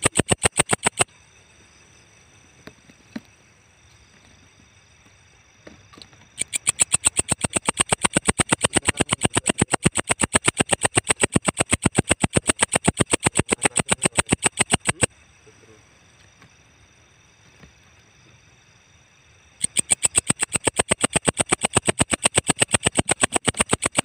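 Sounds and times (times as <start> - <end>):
katydid chirping: 0.0 - 2.3, 6.4 - 16.0, 19.0 - 24.0.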